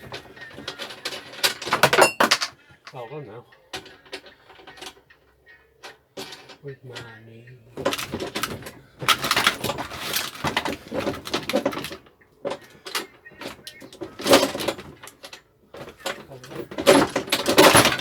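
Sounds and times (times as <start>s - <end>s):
lawnmower scraping and rattling: 7.7s - 18.0s.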